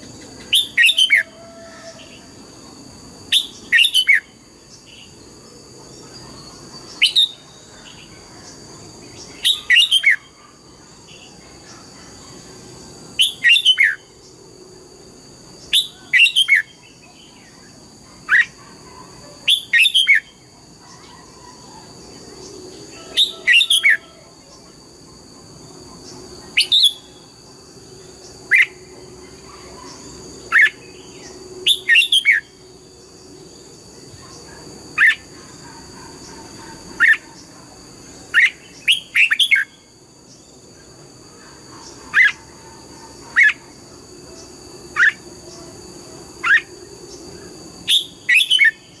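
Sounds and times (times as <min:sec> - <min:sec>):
bird singing whistled notes: 0:06.9 - 0:07.6, 0:09.3 - 0:10.3, 0:13.2 - 0:14.0, 0:15.7 - 0:17.1, 0:47.8 - 0:49.0.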